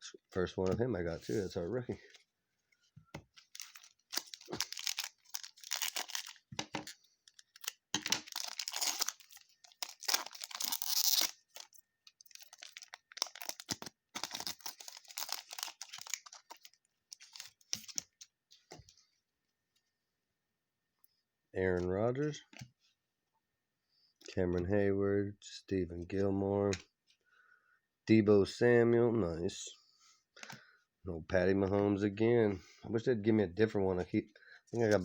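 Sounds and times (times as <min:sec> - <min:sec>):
foil wrapper tearing and crinkling: 0:03.4 - 0:18.2.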